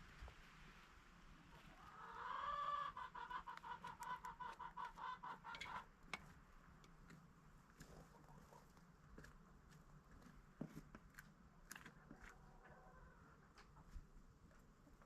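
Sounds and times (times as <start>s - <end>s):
chicken calling and clucking: 1.5s - 6.0s, 7.8s - 9.3s, 11.8s - 14.0s.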